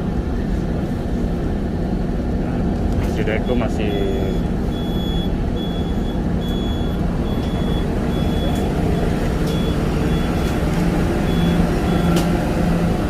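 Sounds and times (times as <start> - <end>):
vehicle engine running: 0.2 - 13.0
high-pitched beeps: 3.4 - 10.6.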